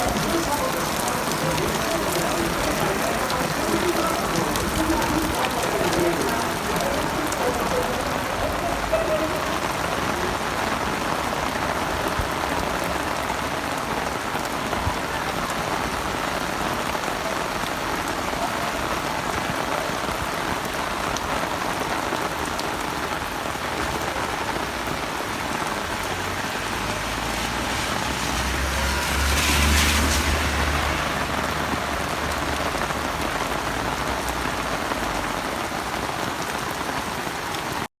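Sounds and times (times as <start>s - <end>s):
heavy rain falling: 0.0s - 37.9s.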